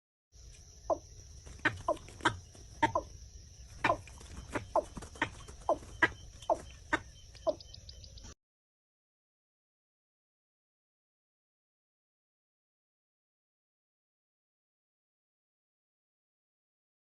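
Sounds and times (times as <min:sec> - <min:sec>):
bird clucking calls: 0:00.9 - 0:08.3.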